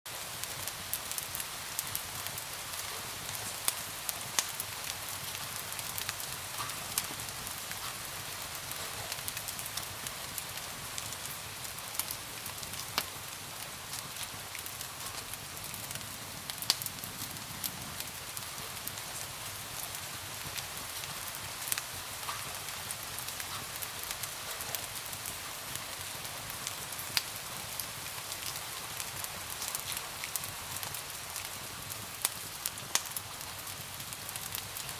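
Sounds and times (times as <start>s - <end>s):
rain hiss: 0.1s - 34.9s
wood fire crackling: 0.1s - 34.9s.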